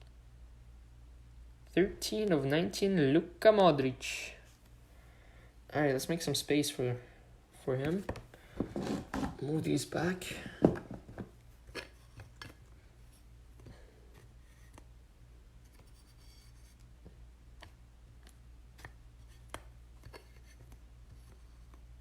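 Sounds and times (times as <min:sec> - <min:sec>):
low electrical hum: 0:00.0 - 0:22.0
trading cards clicking and rubbing: 0:15.6 - 0:21.9.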